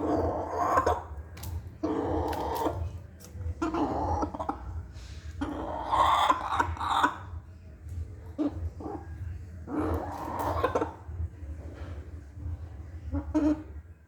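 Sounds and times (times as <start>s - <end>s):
hen clucking: 0.0s - 7.4s, 8.2s - 11.2s, 13.1s - 13.8s.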